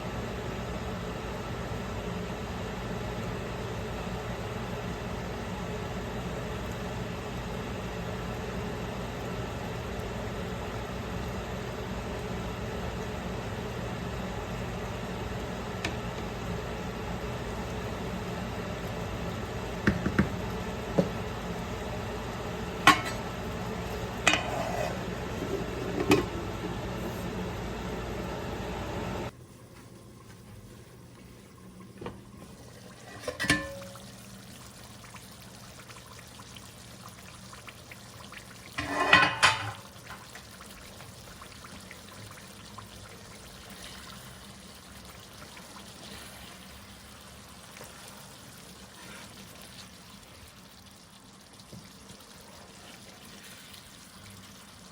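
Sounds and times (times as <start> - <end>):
steady hum: 6.2 - 34.2
utensils clinking on pots: 22.8 - 23.3, 24.2 - 26.4, 33.0 - 34.0, 38.8 - 40.2.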